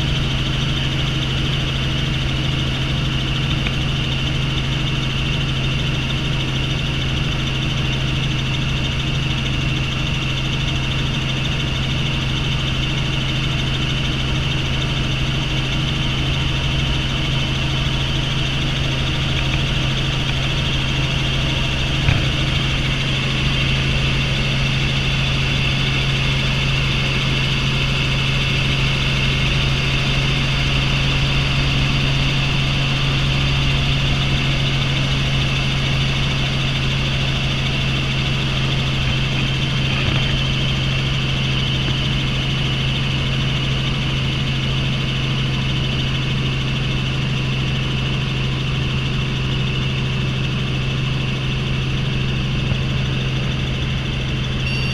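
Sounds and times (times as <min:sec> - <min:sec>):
helicopter cabin drone: 0:00.0 - 0:54.9
high whine: 0:17.0 - 0:27.4, 0:54.1 - 0:54.9.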